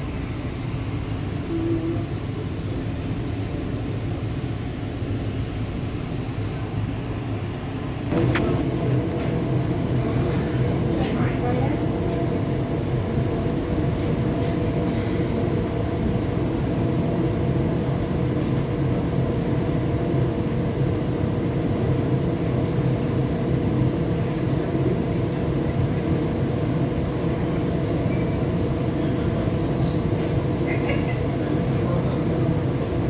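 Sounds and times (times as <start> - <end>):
electric train rumbling: 0.0 - 33.0.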